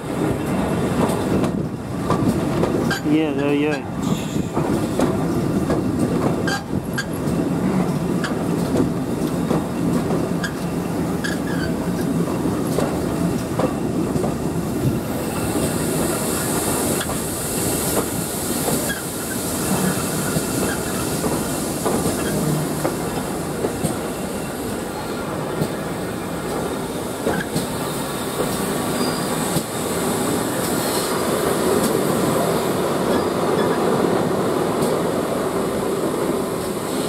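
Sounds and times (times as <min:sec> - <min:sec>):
train carriage rumble: 0:00.0 - 0:37.0
steam hiss: 0:15.0 - 0:25.1, 0:26.3 - 0:33.7.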